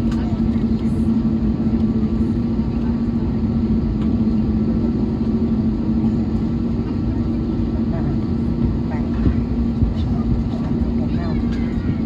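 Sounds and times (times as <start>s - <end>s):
aircraft cabin drone: 0.0s - 12.0s.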